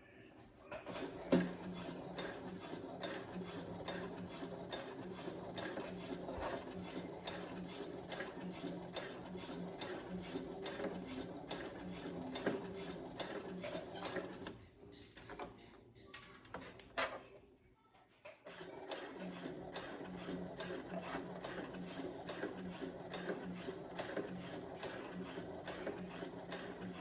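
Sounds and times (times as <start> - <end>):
sewing machine stitching: 0.9 - 15.8, 18.4 - 27.0.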